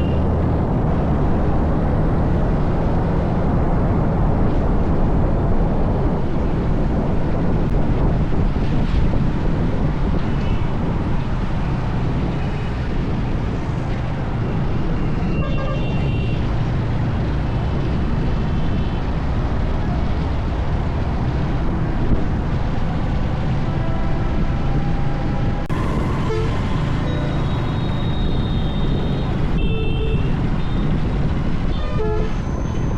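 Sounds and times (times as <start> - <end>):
wind buffeting microphone: 0.0 - 32.9
faint high tones in traffic: 24.8 - 31.1.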